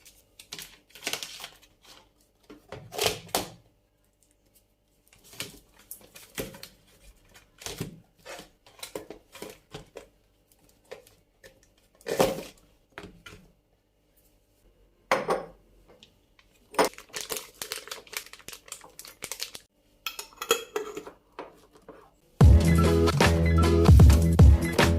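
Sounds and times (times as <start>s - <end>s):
plastic containers being handled: 5.1s - 13.6s.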